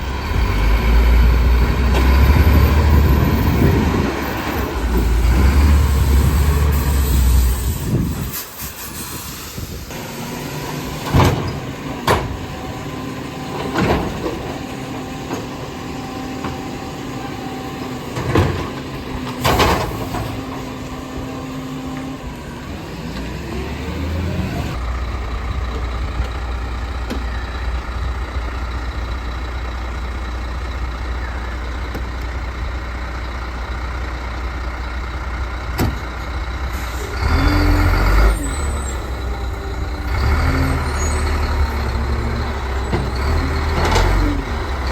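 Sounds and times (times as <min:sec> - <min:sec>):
garbage truck engine rumbling: 0:00.0 - 0:44.9.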